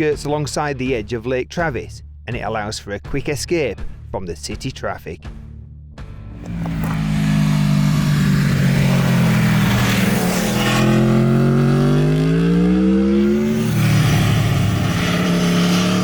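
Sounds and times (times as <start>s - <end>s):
motorcycle engine revving: 6.4s - 16.0s.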